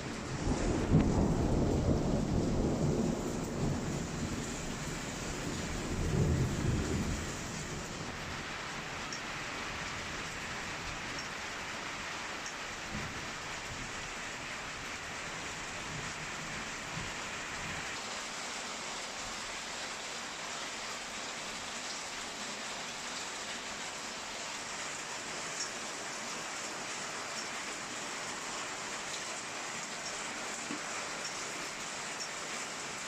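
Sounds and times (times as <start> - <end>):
heavy rain hissing: 0.0 - 33.0
thunder rumbling: 0.2 - 8.2.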